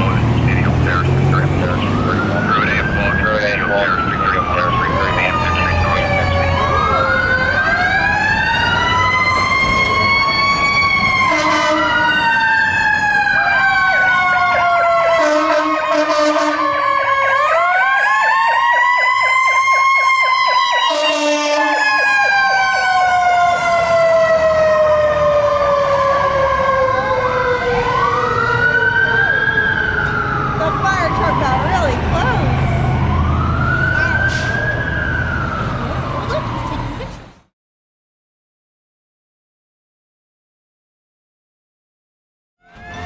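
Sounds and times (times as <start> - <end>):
siren wailing and yelping: 0.9 - 37.3, 42.6 - 43.0
air horn blasts: 11.3 - 12.0, 15.2 - 16.7, 20.9 - 21.8.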